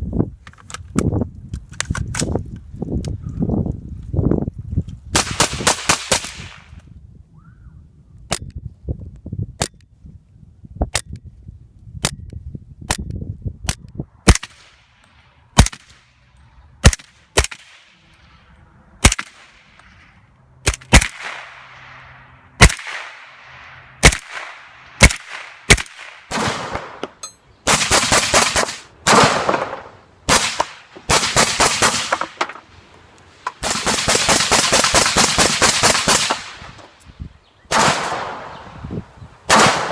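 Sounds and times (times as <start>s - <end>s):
suppressed gunfire: 5.2s - 6.7s, 15.6s - 16.1s, 16.8s - 18.0s, 19.0s - 20.0s, 20.6s - 21.9s, 22.6s - 32.4s, 33.4s - 36.8s, 37.7s - 38.6s, 39.5s - 39.9s.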